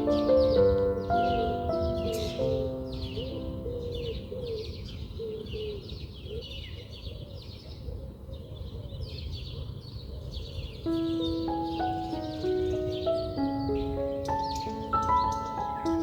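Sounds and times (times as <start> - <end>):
lower short bird calls: 0.0 - 5.9
high falling bird chirps: 0.0 - 6.8, 10.5 - 16.0.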